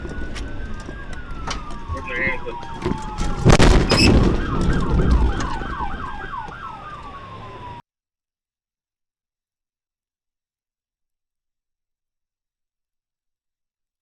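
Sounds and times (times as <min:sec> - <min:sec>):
police siren wail and yelp: 0:00.0 - 0:07.8.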